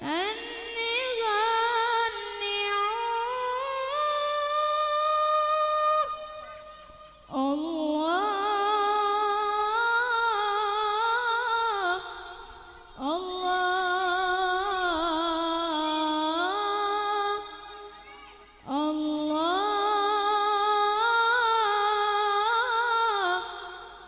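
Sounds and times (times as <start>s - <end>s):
person singing wordless melody: 0.0s - 24.0s.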